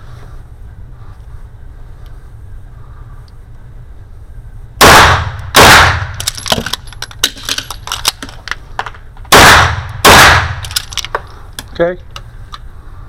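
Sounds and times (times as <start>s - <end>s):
pistol shots: 4.8s - 6.4s, 9.3s - 10.8s
magazine reload clicks and clatters: 6.1s - 9.0s, 10.6s - 12.7s.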